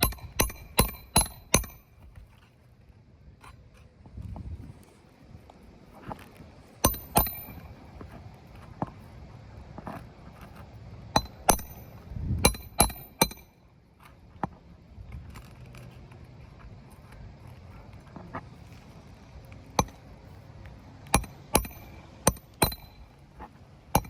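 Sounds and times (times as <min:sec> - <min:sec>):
hammer striking nails: 0:00.0 - 0:01.9, 0:06.8 - 0:07.6, 0:11.2 - 0:13.5, 0:19.8 - 0:20.0, 0:21.1 - 0:23.0.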